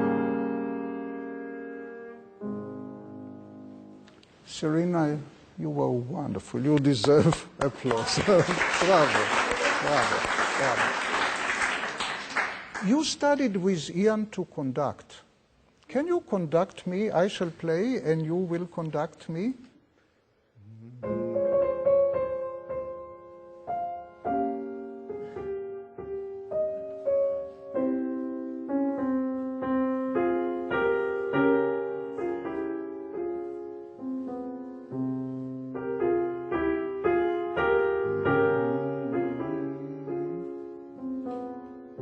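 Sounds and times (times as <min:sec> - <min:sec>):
slow classical piano chords: 0:00.0 - 0:04.3, 0:21.0 - 0:42.0.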